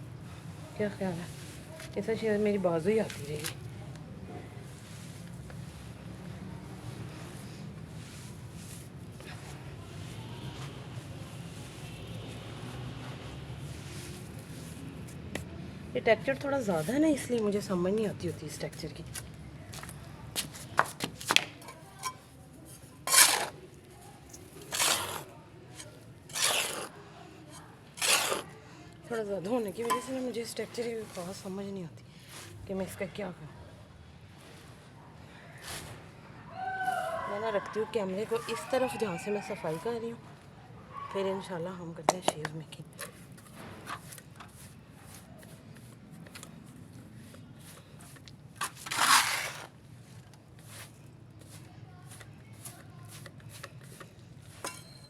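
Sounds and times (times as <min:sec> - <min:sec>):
faint handling and rustling: 0:00.2 - 0:36.2, 0:42.3 - 0:55.0
utensil scraping wet mix in bowl: 0:22.0 - 0:23.6, 0:24.6 - 0:28.5, 0:29.5 - 0:30.4.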